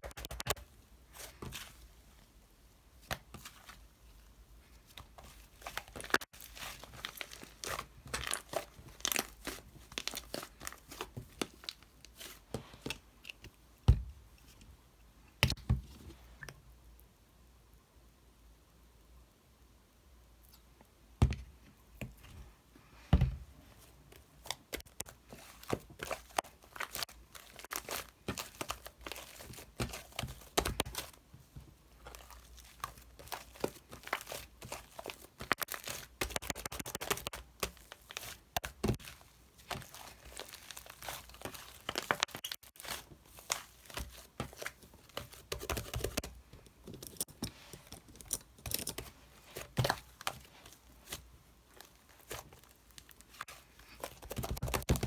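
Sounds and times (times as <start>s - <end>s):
packaging crinkling and rustling: 5.6s - 13.0s, 24.4s - 31.2s, 32.0s - 55.0s.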